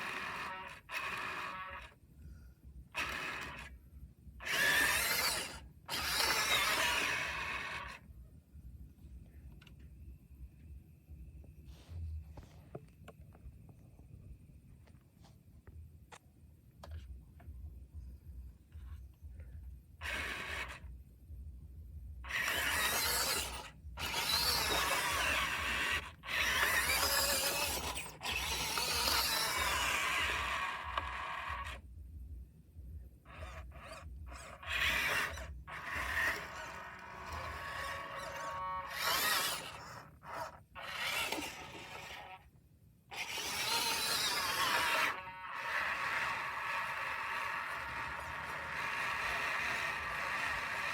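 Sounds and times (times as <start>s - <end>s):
small electric motor whirring: 0.0s - 2.0s, 2.9s - 3.8s, 4.4s - 8.0s, 20.0s - 20.9s, 22.2s - 31.8s, 33.3s - 42.4s, 43.1s - 50.9s.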